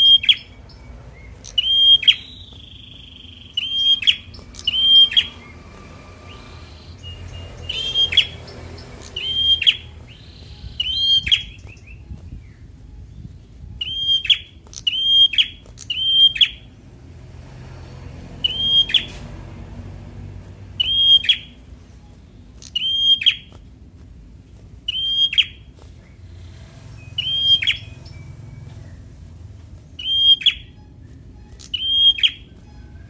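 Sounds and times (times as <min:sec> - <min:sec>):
bird chirping: 0:00.0 - 0:33.0.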